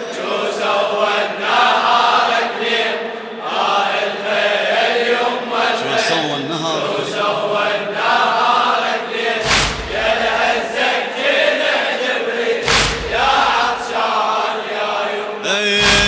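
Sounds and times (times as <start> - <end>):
group chanting in unison: 0.0 - 16.0
heavy thumps: 9.4 - 10.6, 12.6 - 13.8, 15.8 - 16.0.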